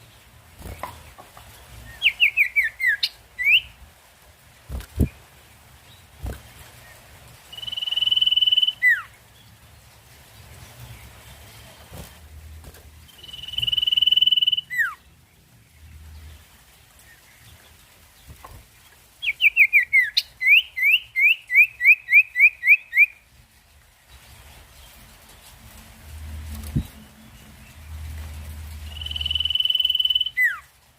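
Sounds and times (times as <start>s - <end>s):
songbird chirping: 0.0s - 4.0s, 4.7s - 30.8s
songbird whistling: 2.0s - 3.7s, 7.5s - 9.1s, 13.2s - 15.0s, 19.3s - 23.2s, 28.9s - 30.6s.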